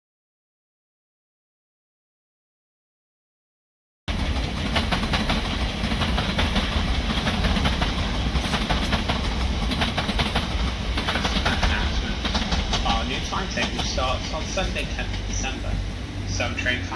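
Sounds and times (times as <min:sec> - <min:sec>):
train rumbling past: 0:04.1 - 0:16.9
wheels clicking over rail joints: 0:04.1 - 0:16.9.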